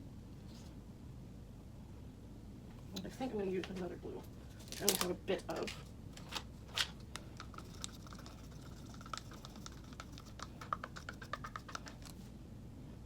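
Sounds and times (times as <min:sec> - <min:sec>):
plastic cups clicking and tapping: 0:07.1 - 0:12.2
paint pouring: 0:07.2 - 0:12.3.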